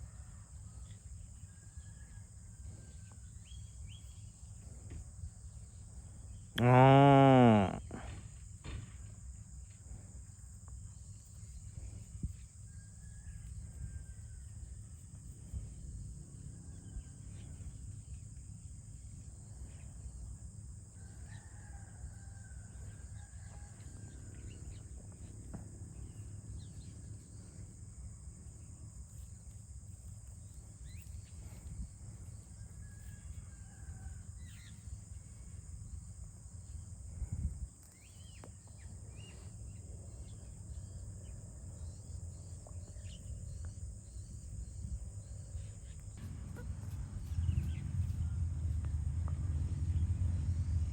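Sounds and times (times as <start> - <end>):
high insect drone: 0.0 - 50.8
rooster crowing: 12.7 - 14.6, 21.0 - 24.8, 32.6 - 34.5
low wind rumble: 30.9 - 37.8, 38.8 - 50.9.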